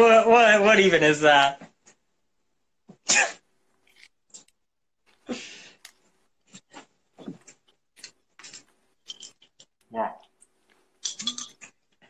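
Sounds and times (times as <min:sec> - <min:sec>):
person chewing crunchy food: 0:03.8 - 0:06.8.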